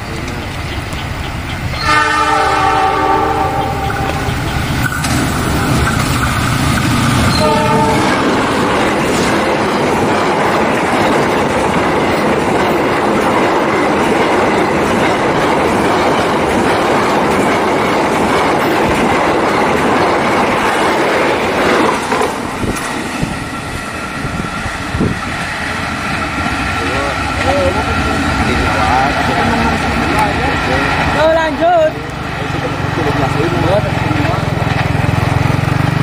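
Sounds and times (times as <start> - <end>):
locomotive engine and wheel noise: 0.0 - 36.0
train horn blast: 1.8 - 4.4, 7.3 - 8.3.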